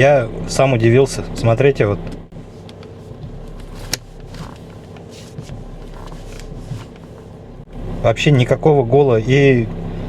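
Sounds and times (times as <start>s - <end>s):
car engine idling: 0.2s - 10.0s.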